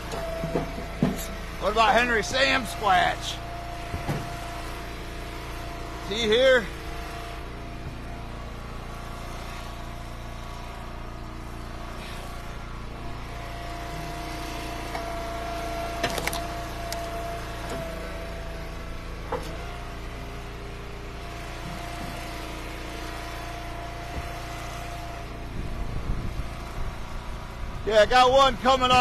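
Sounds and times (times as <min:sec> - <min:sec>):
wood splitter engine whining: 0:00.0 - 0:29.0
sharp knocks: 0:03.9 - 0:04.4.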